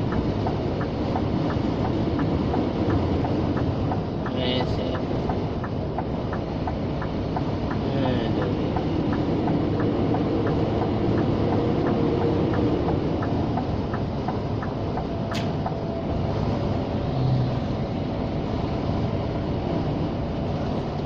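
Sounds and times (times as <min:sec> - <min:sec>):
light even ticking: 0:00.0 - 0:15.8
diesel engine running: 0:00.0 - 0:21.0
road and wind noise: 0:00.0 - 0:21.0
sharp click: 0:15.3 - 0:15.8.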